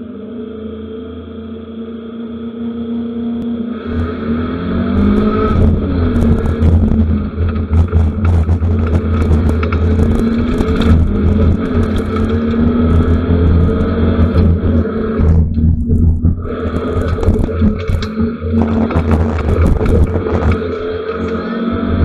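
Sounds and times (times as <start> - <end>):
rally car engine revving: 0.0 - 22.0
sharp clicks and rattles: 5.0 - 22.0.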